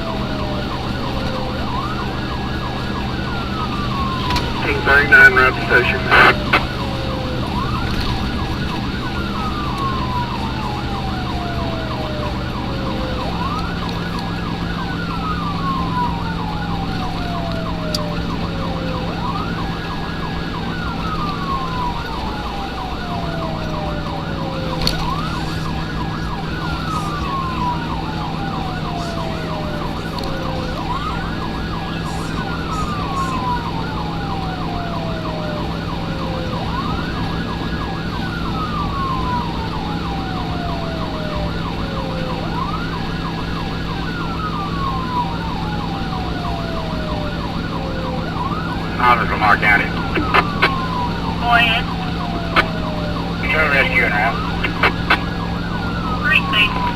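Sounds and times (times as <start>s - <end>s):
emergency siren wailing: 0.0s - 56.9s
low vehicle engine drone: 4.0s - 6.7s, 48.5s - 56.9s.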